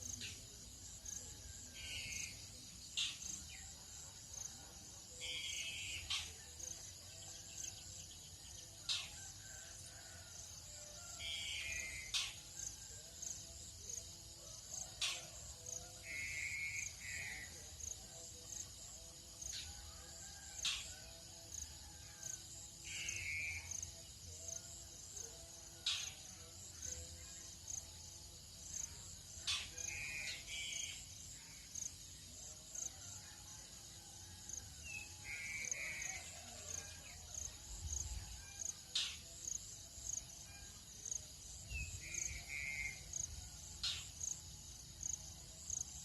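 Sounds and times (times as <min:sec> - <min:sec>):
pulsing insect drone: 0:00.0 - 0:46.0
trilled bird calls: 0:11.3 - 0:12.4.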